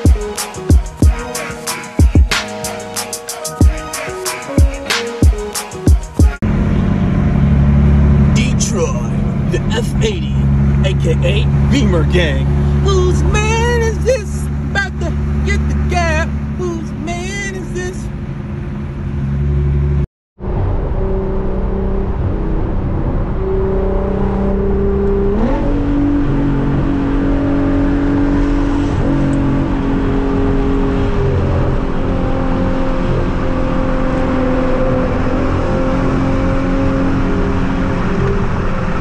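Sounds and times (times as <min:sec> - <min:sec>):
car engine drone: 0:00.0 - 0:39.0
road noise inside car: 0:06.4 - 0:39.0.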